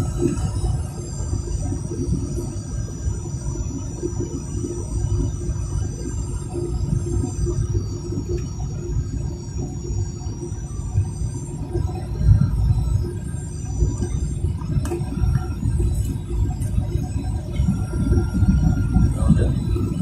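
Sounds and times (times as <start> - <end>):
jet engine whine: 0.0 - 20.0
airplane cabin low rumble: 10.8 - 20.0.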